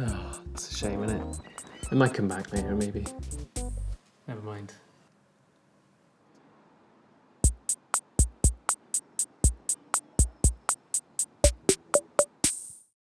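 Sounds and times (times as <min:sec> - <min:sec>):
drum machine beat: 0:00.0 - 0:04.0, 0:07.4 - 0:12.9.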